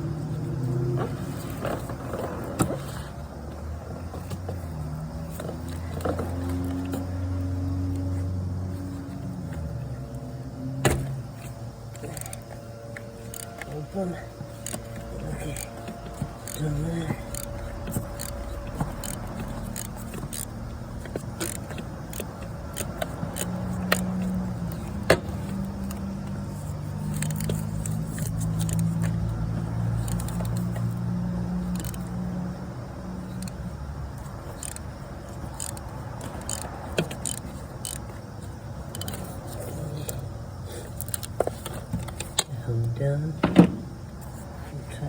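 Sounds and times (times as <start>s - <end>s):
socket wrench clicking and clinking: 14.6s - 26.0s, 35.5s - 38.1s.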